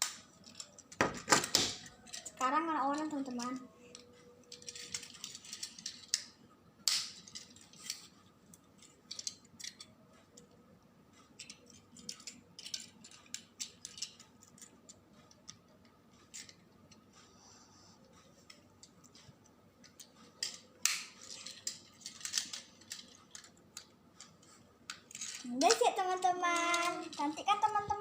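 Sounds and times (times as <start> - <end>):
plastic toy clicking and snapping: 0.0 - 8.1, 11.4 - 15.6, 19.8 - 28.0.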